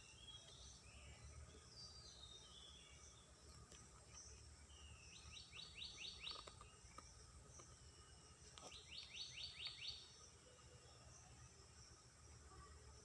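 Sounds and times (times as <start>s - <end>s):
faint outdoor background noise: 0.0s - 13.0s
songbird singing faintly: 0.0s - 13.0s.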